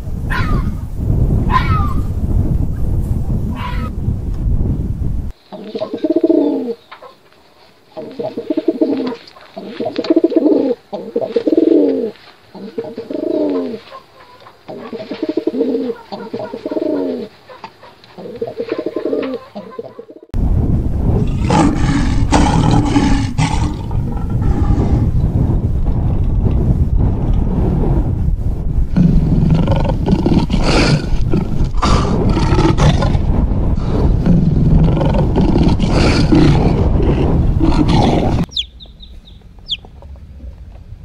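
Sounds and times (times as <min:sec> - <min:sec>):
pigeons cooing: 0:05.5 - 0:07.2, 0:08.0 - 0:20.3
loud rough roaring noise: 0:20.7 - 0:41.0.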